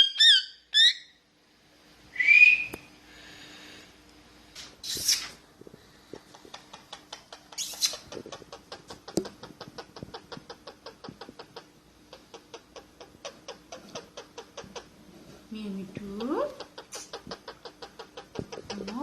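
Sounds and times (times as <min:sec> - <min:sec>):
parrot hissing: 0:04.6 - 0:05.4, 0:16.8 - 0:17.3
parrot clicking: 0:06.1 - 0:14.8, 0:16.2 - 0:19.0.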